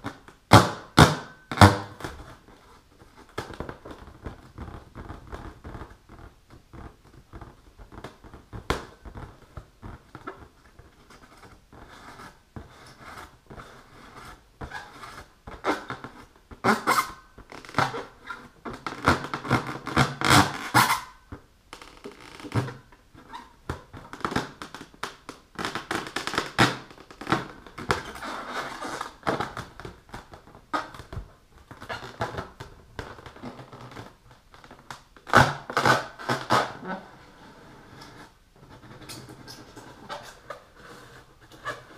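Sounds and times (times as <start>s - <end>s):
fingernails scratching a balloon: 4.0s - 21.2s, 27.8s - 31.2s, 35.3s - 41.9s.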